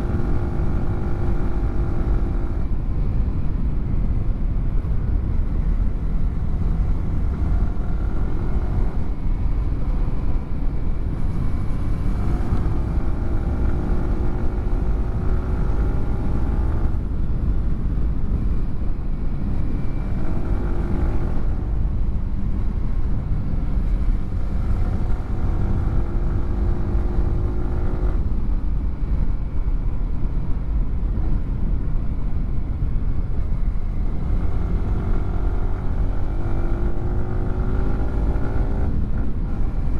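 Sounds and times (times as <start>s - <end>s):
heavy low rumble: 0.0s - 39.9s.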